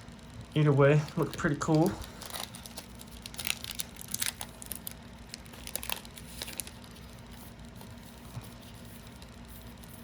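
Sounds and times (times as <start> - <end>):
foil wrappers crinkling: 0.8 - 10.0.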